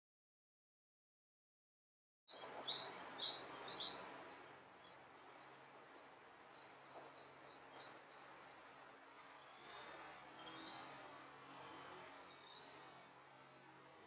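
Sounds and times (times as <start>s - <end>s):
songbirds singing: 2.3s - 8.5s, 9.2s - 13.2s.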